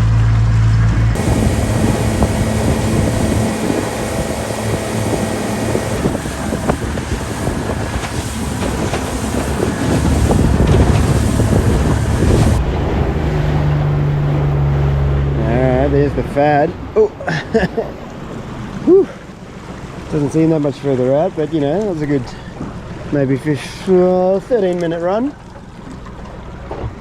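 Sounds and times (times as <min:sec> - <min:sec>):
outboard motor: 0:00.0 - 0:27.0
wind buffeting the microphone: 0:01.1 - 0:14.5
rush of water: 0:01.2 - 0:27.0.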